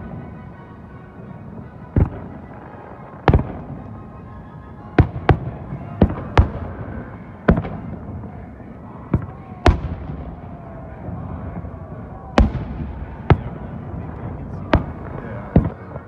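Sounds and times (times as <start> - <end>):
fireworks booming overhead: 0.0 - 16.0.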